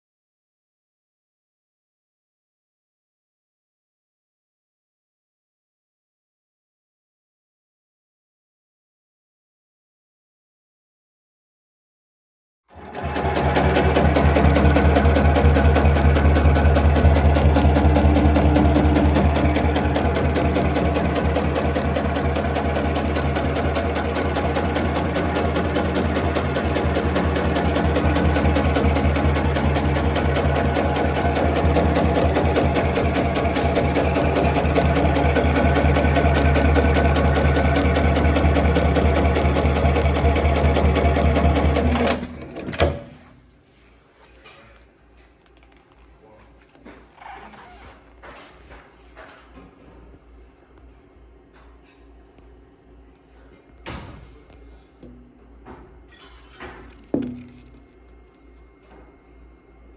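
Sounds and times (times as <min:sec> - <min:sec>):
sewing machine stitching rapidly: 0:12.7 - 0:43.1
drive motor hum: 0:12.8 - 0:43.0.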